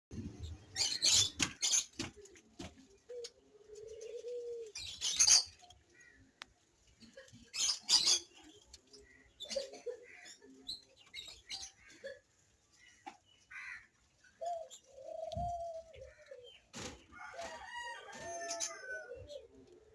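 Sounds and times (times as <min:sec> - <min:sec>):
birds calling harshly: 0:00.7 - 0:02.2, 0:12.8 - 0:17.0
low drawn-out bird coo: 0:03.0 - 0:05.5, 0:09.4 - 0:10.8, 0:14.4 - 0:16.6, 0:17.3 - 0:19.9.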